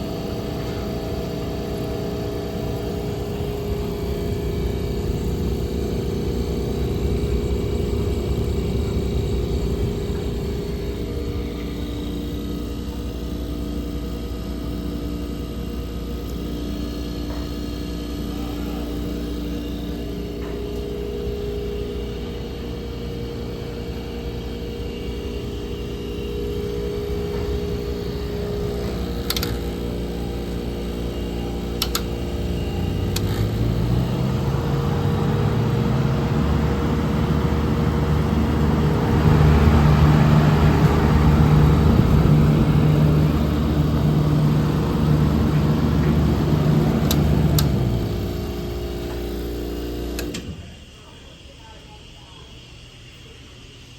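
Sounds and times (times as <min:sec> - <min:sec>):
compressor electric hum: 0:00.0 - 0:53.9
motor starting up: 0:00.3 - 0:13.4, 0:23.9 - 0:50.9
sharp clicks: 0:31.8 - 0:32.2.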